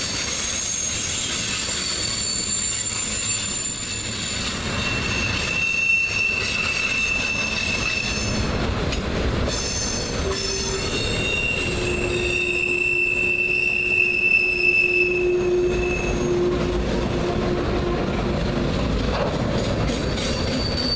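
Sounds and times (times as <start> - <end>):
high wheel squeal: 0.0 - 8.5, 9.5 - 18.0, 20.0 - 20.9
lower wheel squeal: 0.0 - 8.5, 9.5 - 17.6, 20.0 - 20.9
freight cars rumbling: 4.0 - 13.9, 15.2 - 20.9.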